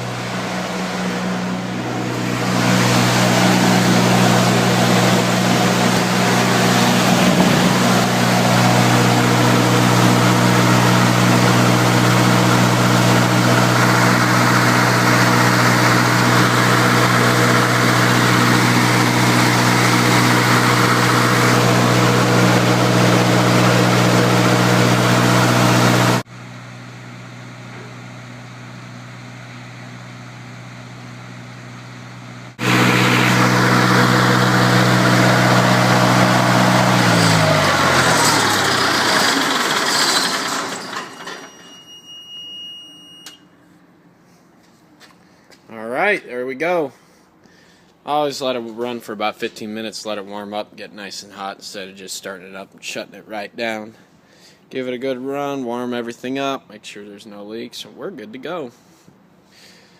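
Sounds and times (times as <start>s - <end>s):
diesel generator engine running: 0.0s - 42.4s.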